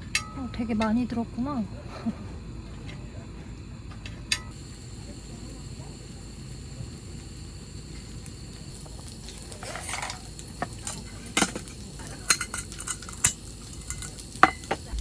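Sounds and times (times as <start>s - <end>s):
metal utensils clinking on dishes: 10.8s - 14.9s.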